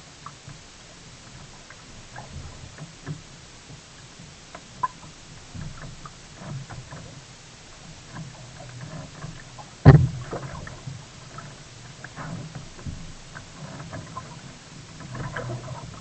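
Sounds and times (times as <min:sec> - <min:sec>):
low steady rumble: 0:00.0 - 0:16.0
water sounds and ticks: 0:00.0 - 0:16.0
loud knock on kayak: 0:09.8 - 0:10.5.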